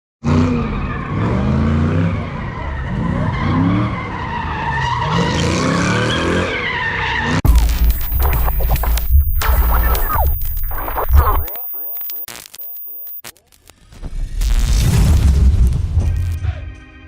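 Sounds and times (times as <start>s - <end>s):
car tires squealing: 2.4s - 7.4s
sharp clicks: 7.5s - 13.7s.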